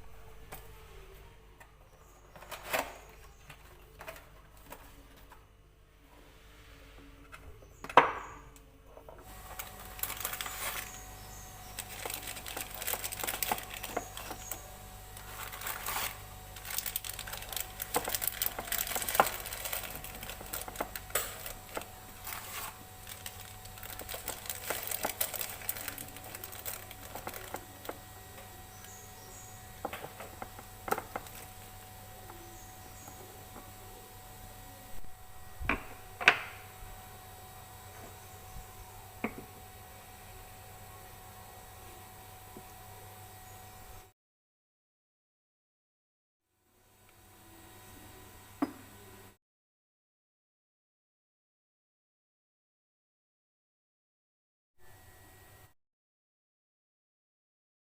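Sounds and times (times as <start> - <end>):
small clicks taps and crinkling: 11.8 - 14.6, 16.6 - 22.4, 23.0 - 29.0.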